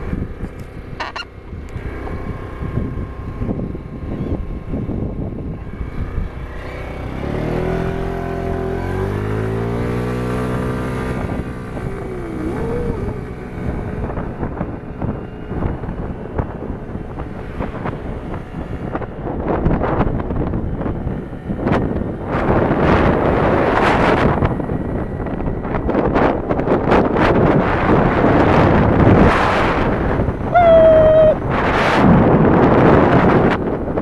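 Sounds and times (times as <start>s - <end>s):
traffic din: 1.0s - 1.4s, 8.8s - 14.2s, 30.5s - 31.5s
motorcycle engine revving: 5.5s - 16.0s.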